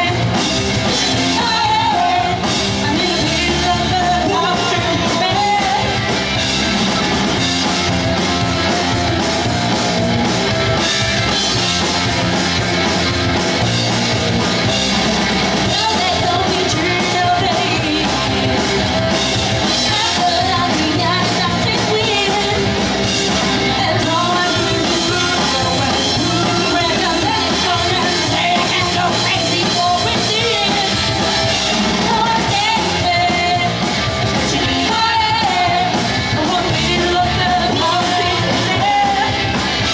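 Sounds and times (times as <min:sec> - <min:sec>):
person singing lead vocal: 0:00.0 - 0:06.5, 0:15.6 - 0:39.9
live rock band playing: 0:00.0 - 0:39.9.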